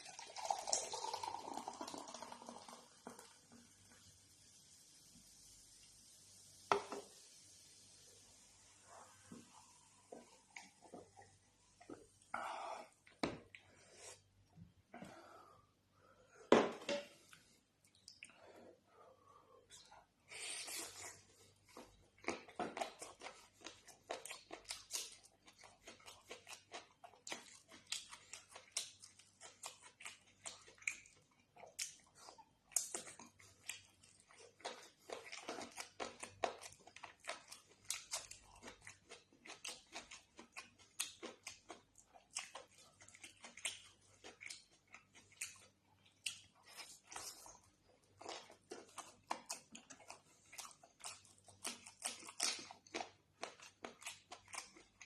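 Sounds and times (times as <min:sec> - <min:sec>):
close-miked chewing and mouth smacks: 0:17.3 - 0:18.4, 0:20.7 - 0:55.0.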